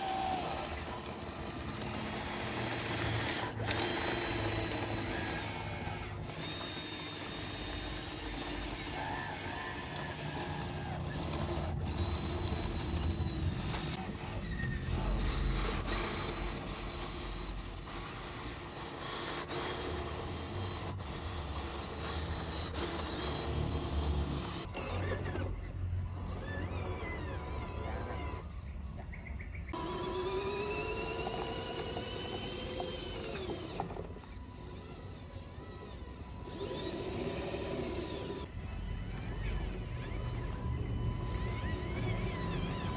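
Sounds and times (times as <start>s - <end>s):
electric motors and gears running: 0.0s - 28.6s, 29.7s - 42.9s.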